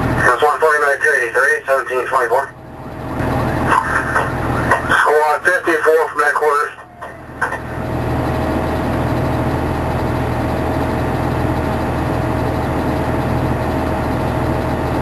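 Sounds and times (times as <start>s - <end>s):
thin steady whine: 0.0s - 14.9s
fire engine running: 0.0s - 15.0s.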